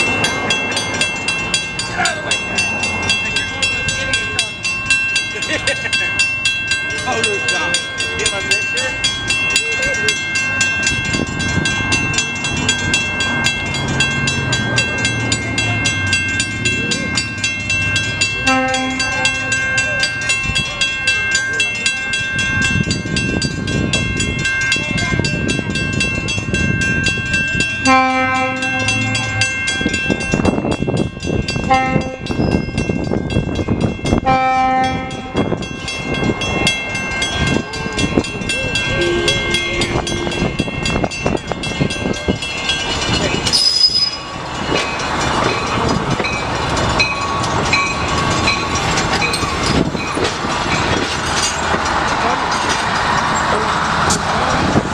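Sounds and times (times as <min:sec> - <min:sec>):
train rumble and wheel clatter: 0:00.0 - 0:54.9
locomotive horn blasts: 0:18.4 - 0:19.6, 0:27.8 - 0:29.4, 0:31.7 - 0:32.3, 0:34.2 - 0:35.4
steady high-pitched tone: 0:38.6 - 0:41.2.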